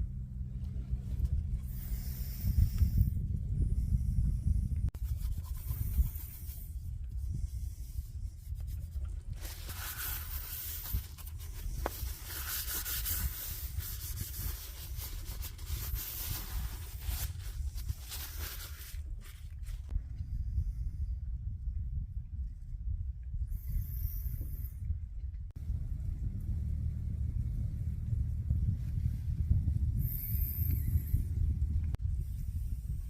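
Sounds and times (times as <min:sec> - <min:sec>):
continuous low rumble: 0:00.0 - 0:33.0
rubbing and scraping strokes: 0:04.9 - 0:20.0.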